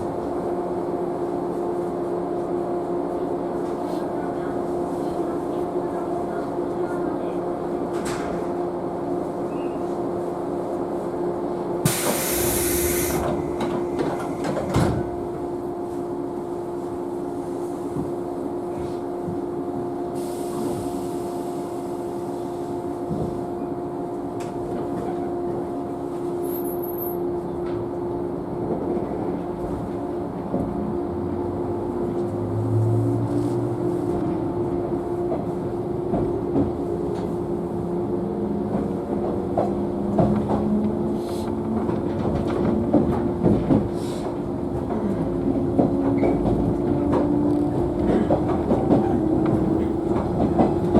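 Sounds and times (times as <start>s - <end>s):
electric train hum: 0.0s - 50.9s
air hiss: 11.8s - 13.4s
wheels clacking over rail joints: 41.6s - 50.9s.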